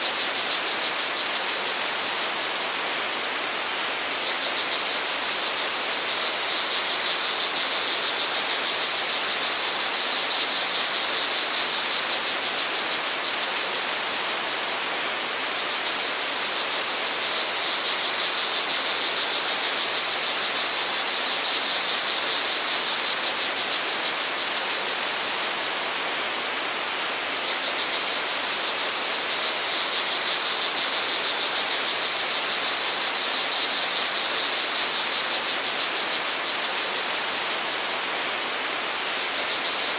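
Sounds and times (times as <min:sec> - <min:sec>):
crickets trilling: 0:00.0 - 0:25.8, 0:26.9 - 0:39.9.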